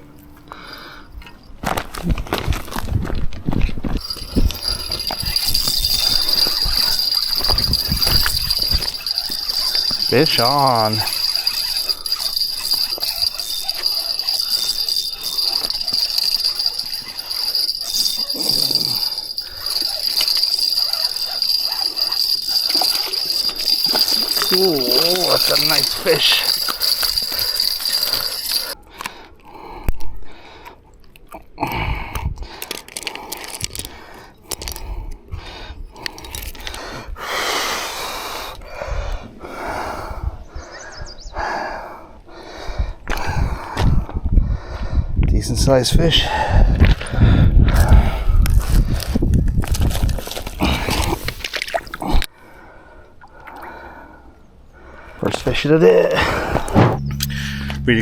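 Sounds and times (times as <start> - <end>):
fishing reel clicks and rattles: 4.0 - 28.8
high-pitched insect chorus: 4.0 - 28.8.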